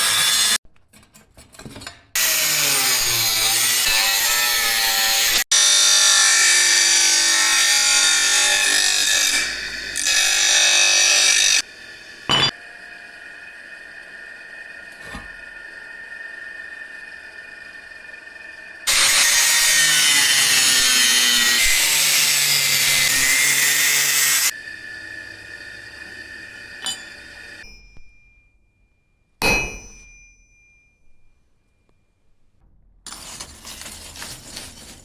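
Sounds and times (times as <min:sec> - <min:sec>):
workshop background sound: 0:00.0 - 0:35.0
power tool grinding iron: 0:02.2 - 0:27.7
sharp ringing metal strike: 0:29.4 - 0:31.3.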